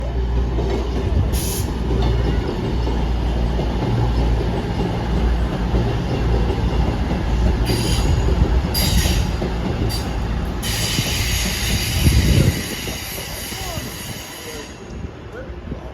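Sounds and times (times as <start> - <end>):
train rumbling along track: 0.0 - 15.9
wheels squealing against rails: 7.6 - 15.0.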